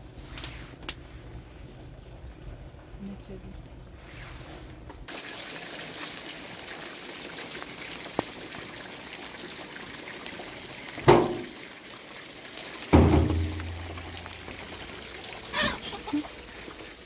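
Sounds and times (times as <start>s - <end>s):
trickling running water: 5.0s - 17.0s
sudden loud thud: 13.0s - 14.6s.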